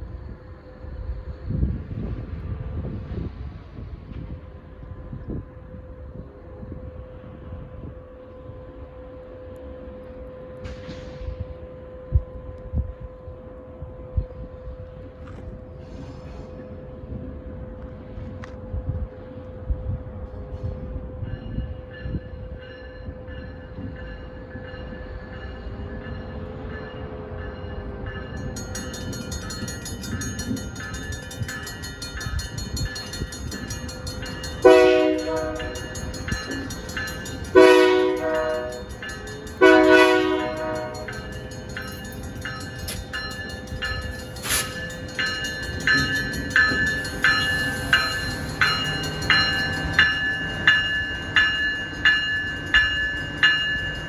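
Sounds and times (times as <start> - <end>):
train wheels clacking: 24.8 - 54.0
bell ringing: 28.4 - 54.0
train air horn blasts: 34.6 - 36.0, 37.5 - 38.9, 39.6 - 41.3.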